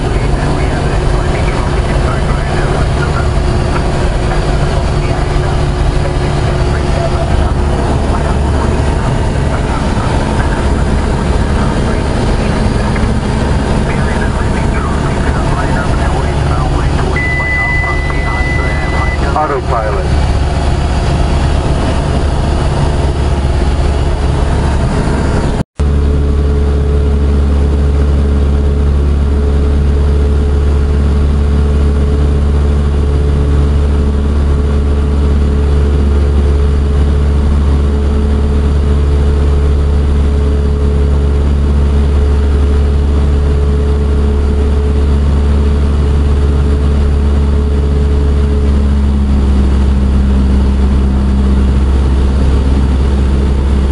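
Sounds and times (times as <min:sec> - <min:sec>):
aircraft engine and propeller droning: 0:00.0 - 0:53.9.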